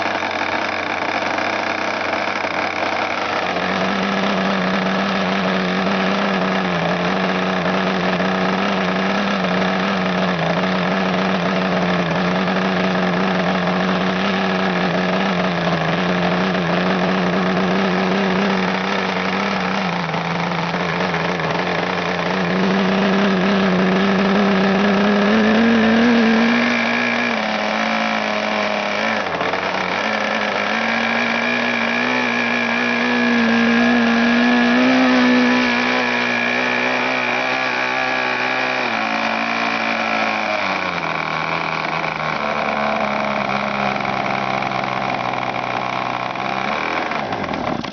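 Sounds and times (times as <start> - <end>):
model aircraft engine running: 0.0 - 47.9.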